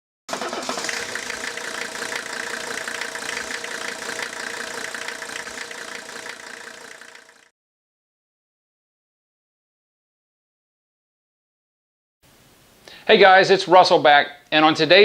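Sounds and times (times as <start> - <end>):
engine running: 0.3 - 7.5.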